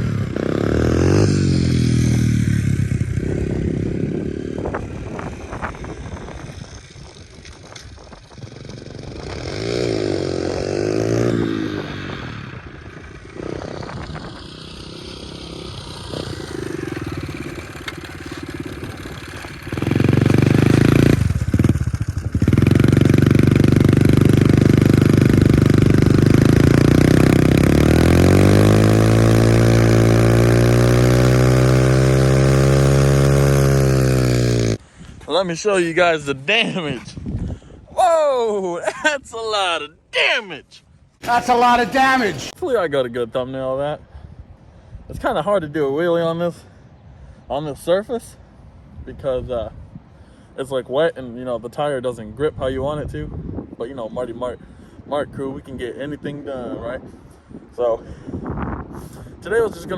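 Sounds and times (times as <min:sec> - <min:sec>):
small motorbike engine revving: 0:00.0 - 0:34.8.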